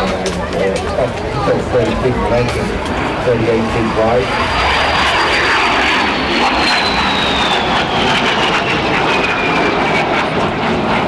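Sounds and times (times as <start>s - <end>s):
jet engine running: 0.0s - 11.0s
high whine falling in pitch: 0.8s - 8.9s.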